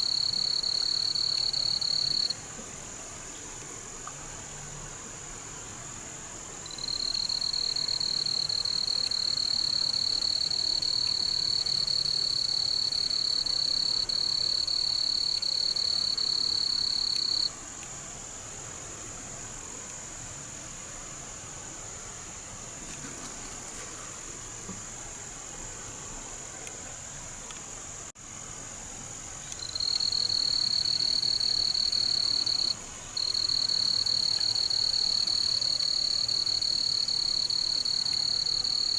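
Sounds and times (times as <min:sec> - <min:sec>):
insects whining: 0:06.6 - 0:17.5, 0:29.3 - 0:38.9
frogs trilling: 0:12.4 - 0:17.5.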